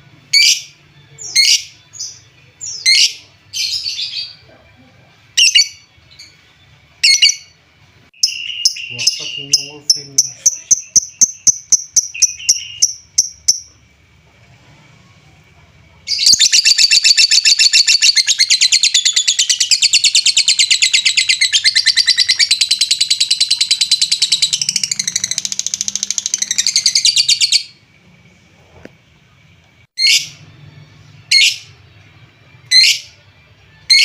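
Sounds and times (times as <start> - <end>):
lovebird chirping and trilling: 0.4 - 4.4, 5.4 - 6.4, 7.0 - 7.6, 8.2 - 13.7, 16.1 - 27.8, 30.0 - 30.4, 31.3 - 31.7, 32.7 - 33.2.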